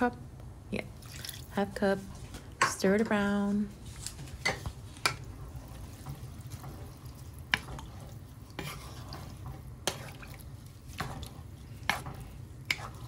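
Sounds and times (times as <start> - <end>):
spatula stirring rice in pot: 4.2 - 13.0
knocks and scrapes against pot: 4.4 - 13.0.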